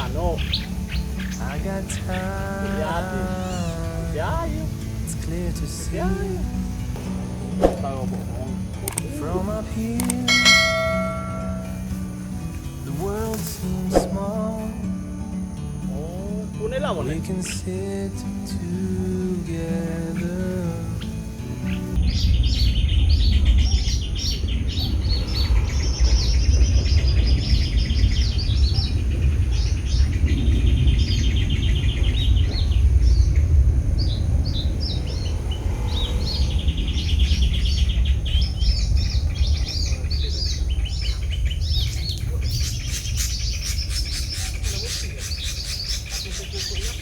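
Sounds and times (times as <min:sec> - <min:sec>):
sharp bird chips: 0:00.0 - 0:14.7, 0:34.0 - 0:47.0
small birds chirping: 0:00.0 - 0:47.0
steady low rumble: 0:18.7 - 0:47.0.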